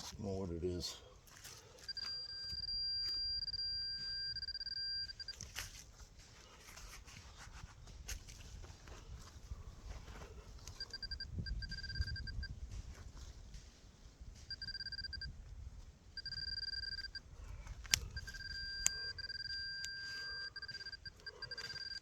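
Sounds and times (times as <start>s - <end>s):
metal detector beeping: 1.6s - 5.8s, 10.6s - 12.6s, 14.4s - 15.5s, 16.1s - 22.0s.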